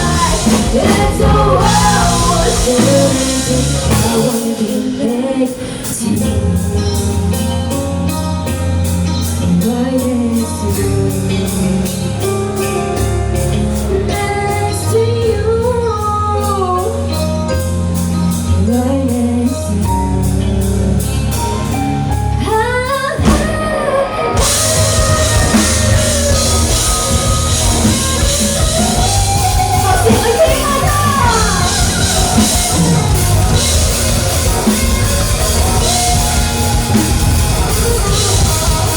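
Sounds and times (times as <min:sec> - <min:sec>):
woman singing: 0:00.0 - 0:08.1, 0:09.6 - 0:12.0, 0:13.9 - 0:17.6, 0:18.6 - 0:21.1, 0:22.4 - 0:33.7
live rock band playing: 0:00.0 - 0:38.9.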